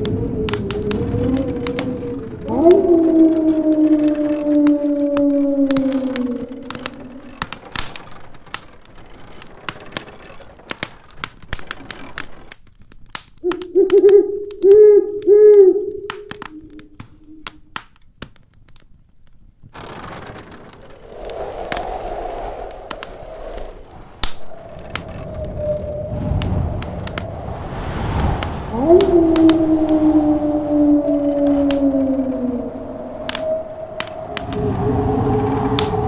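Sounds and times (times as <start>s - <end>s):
storm wind howling: 0.0s - 10.7s, 19.8s - 36.0s
wood fire crackling: 0.0s - 36.0s.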